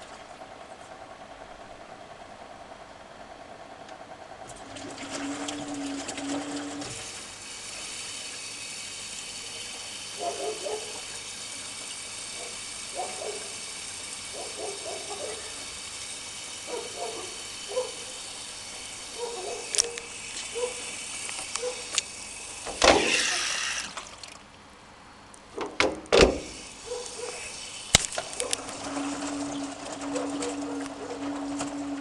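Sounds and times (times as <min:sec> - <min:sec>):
washing machine water inflow hiss: 0:04.5 - 0:24.4, 0:26.3 - 0:32.0.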